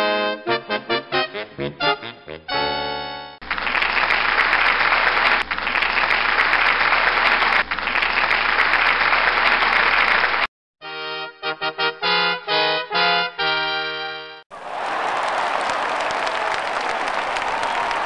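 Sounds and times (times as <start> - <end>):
bouncy music: 0.0 - 3.4, 10.8 - 14.4
crowd applause: 3.4 - 10.5, 14.5 - 18.0.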